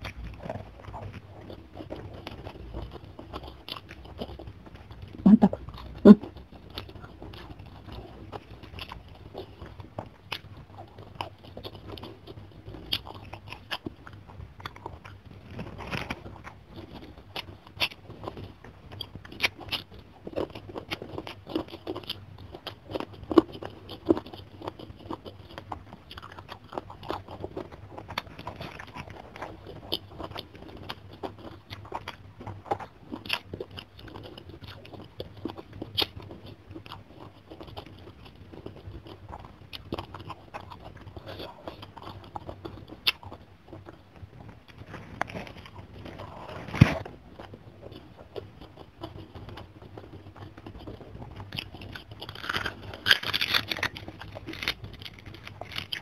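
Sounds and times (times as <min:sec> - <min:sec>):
person chewing and crunching food: 0:00.0 - 0:56.0
wet mouth clicks: 0:05.2 - 0:06.2.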